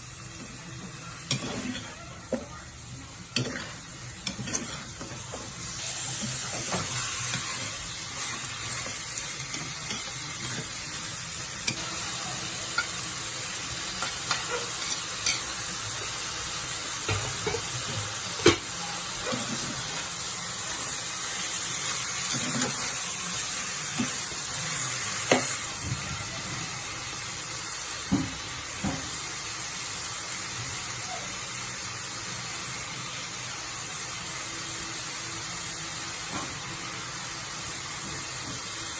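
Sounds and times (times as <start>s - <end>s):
food sizzling in a pan: 0.0s - 38.9s
spoon knocking and scraping pan: 3.3s - 10.8s, 17.0s - 18.7s, 25.2s - 25.6s.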